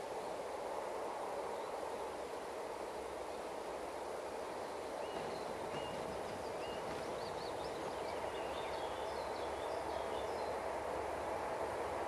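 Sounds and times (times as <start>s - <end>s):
freight train rumble: 0.0s - 12.0s
small birds chirping: 4.6s - 10.6s.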